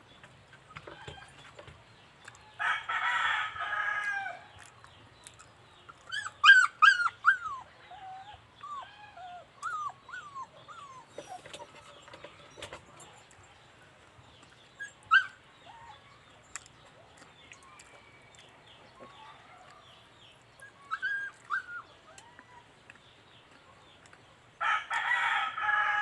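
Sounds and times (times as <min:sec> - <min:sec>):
dog yelping: 0:06.1 - 0:11.8, 0:14.8 - 0:16.0, 0:20.6 - 0:22.6
rooster crowing: 0:24.6 - 0:26.0.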